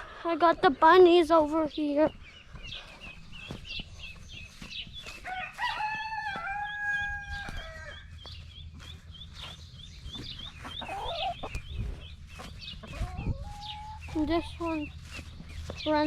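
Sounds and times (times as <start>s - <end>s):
rooster crowing: 5.2s - 8.0s.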